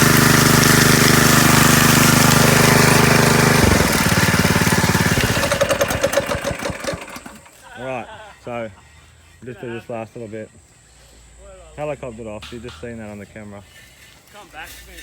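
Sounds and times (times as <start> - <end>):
power trowel petrol engine running: 0.0 - 7.6.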